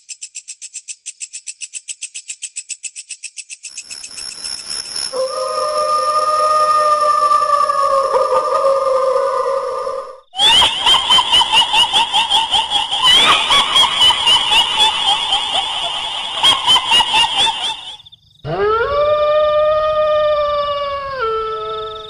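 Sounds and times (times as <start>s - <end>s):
ghostly high wail: 5.1s - 22.0s
shrill rapid cackle: 5.2s - 22.0s.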